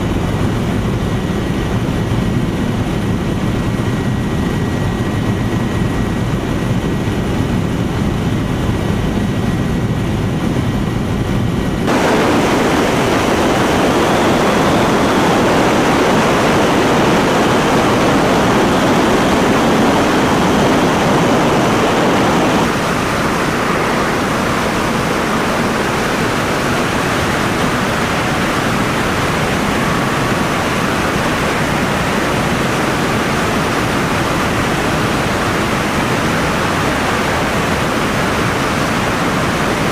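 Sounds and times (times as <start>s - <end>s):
helicopter rotor and engine: 0.0s - 39.9s.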